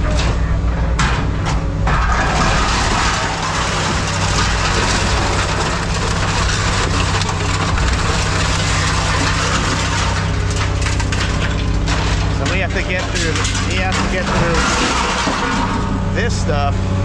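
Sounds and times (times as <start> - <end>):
heavy machinery engine running: 0.0 - 17.0.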